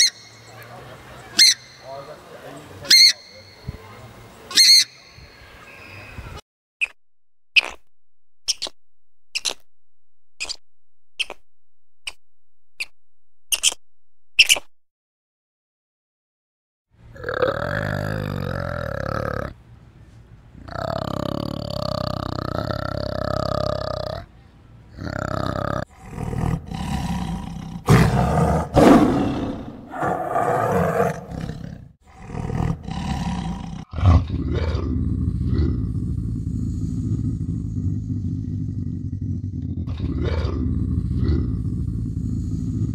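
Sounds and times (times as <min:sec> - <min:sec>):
tiger growling and roaring: 0:17.1 - 0:19.6, 0:20.6 - 0:24.3, 0:24.9 - 0:42.9.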